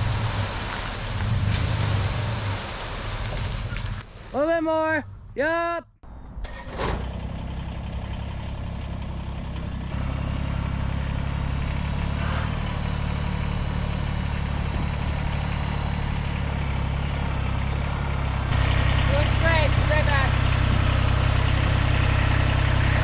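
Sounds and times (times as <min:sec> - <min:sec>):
tractor engine running: 0:06.0 - 0:23.0.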